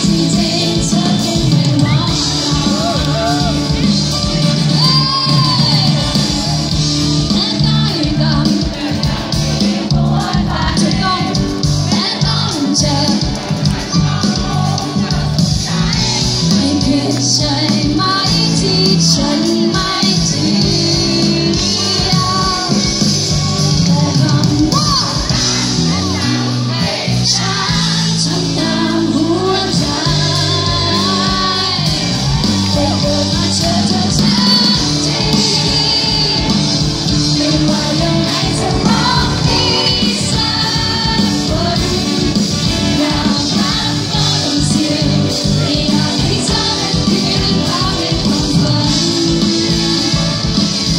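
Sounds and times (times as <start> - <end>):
live pop band with singer: 0.0 - 50.9
crowd shouts: 1.8 - 7.2, 24.7 - 27.9, 31.1 - 37.6.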